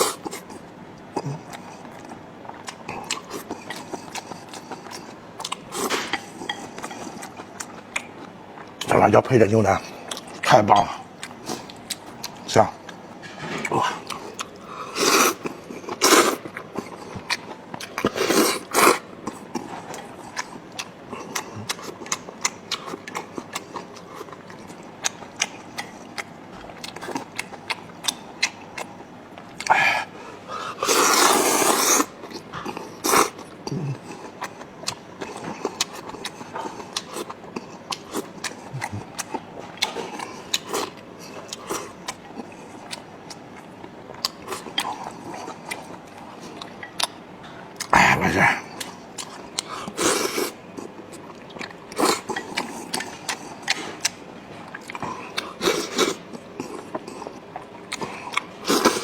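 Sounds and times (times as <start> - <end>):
chewing with wet mouth clicks: 0.0 - 9.1, 9.8 - 29.8, 30.9 - 48.0, 48.6 - 59.0.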